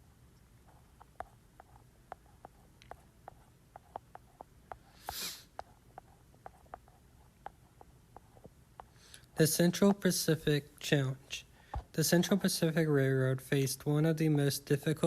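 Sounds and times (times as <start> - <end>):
breath at the microphone: 4.8 - 5.6, 8.9 - 9.4, 11.5 - 11.9.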